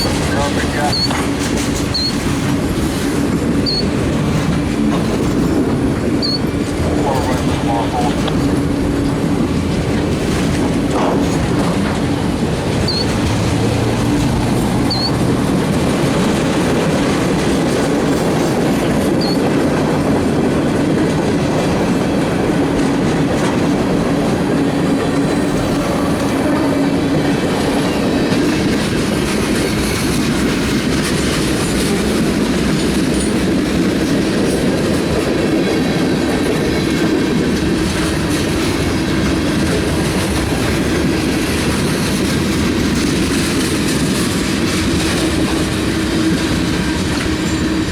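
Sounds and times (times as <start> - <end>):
train cars rolling on rails: 0.0 - 47.9
high squeaks: 1.9 - 2.2, 3.6 - 3.9, 6.2 - 6.5, 12.8 - 13.2, 14.9 - 15.2.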